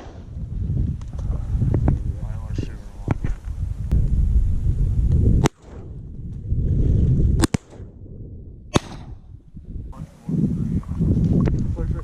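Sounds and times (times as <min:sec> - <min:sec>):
steady low rumble: 0:00.0 - 0:12.0
shotgun shots: 0:05.4 - 0:05.9, 0:07.4 - 0:07.9, 0:08.7 - 0:09.2.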